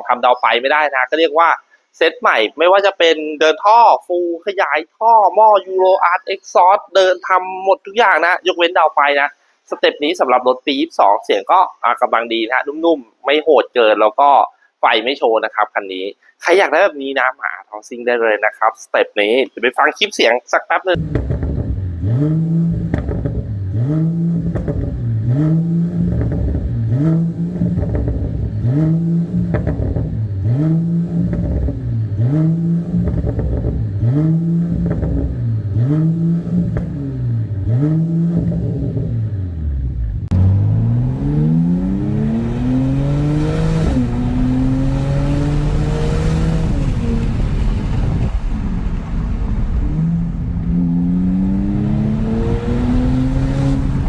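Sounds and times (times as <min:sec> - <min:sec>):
car engine revving: 0:21.0 - 0:54.0
engine accelerating: 0:21.0 - 0:54.0.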